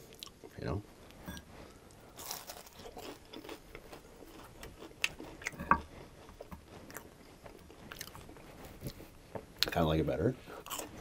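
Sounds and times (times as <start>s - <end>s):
person chewing crunchy food: 1.3s - 9.7s, 10.4s - 11.0s.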